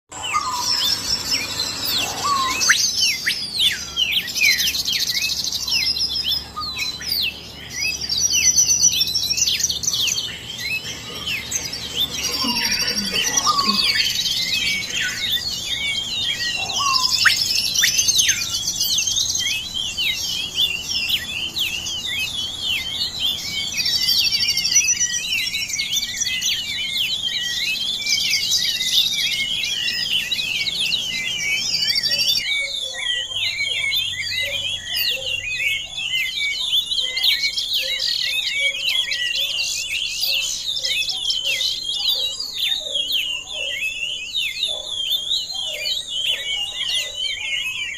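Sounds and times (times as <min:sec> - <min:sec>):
background hum: 0:00.1 - 0:32.6
birds chirping: 0:00.1 - 0:47.9.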